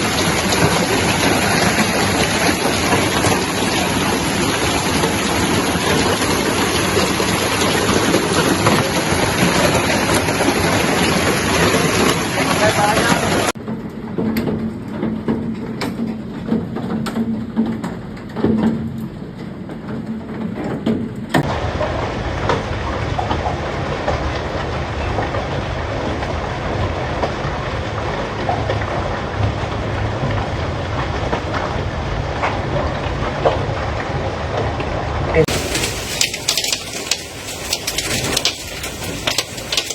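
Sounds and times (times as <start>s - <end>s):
hailstones pelting hard surfaces: 0.0s - 13.9s, 35.4s - 39.9s.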